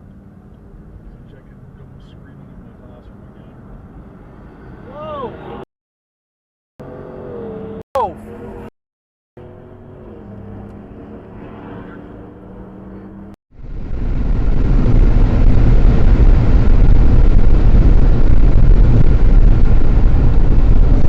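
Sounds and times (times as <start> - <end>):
car engine and cabin hum: 0.0 - 5.1, 9.4 - 21.0
road and wind rumble: 0.0 - 5.7, 6.8 - 8.7, 9.4 - 21.0.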